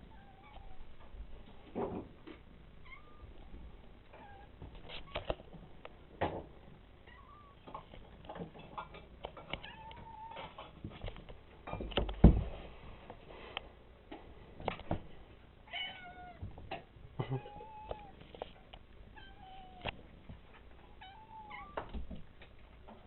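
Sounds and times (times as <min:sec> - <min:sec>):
cats meowing: 0:00.1 - 0:01.1, 0:02.8 - 0:03.5, 0:04.1 - 0:05.4, 0:07.0 - 0:07.8, 0:09.4 - 0:10.7, 0:15.7 - 0:16.6, 0:17.2 - 0:18.2, 0:19.1 - 0:22.0.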